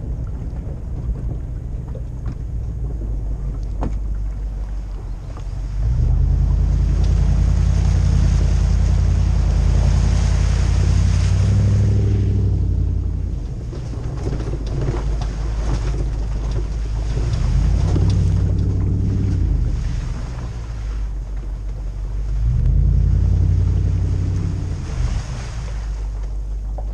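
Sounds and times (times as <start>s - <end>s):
deep engine rumble: 0.0s - 26.9s
light engine ticks and knocks: 13.4s - 19.3s.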